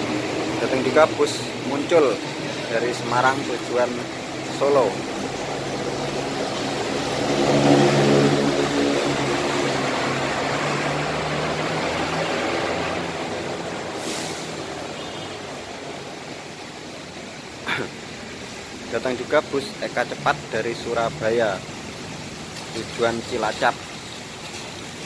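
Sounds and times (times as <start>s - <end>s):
bus engine passing: 0.0s - 25.0s
short hiss: 14.0s - 14.6s.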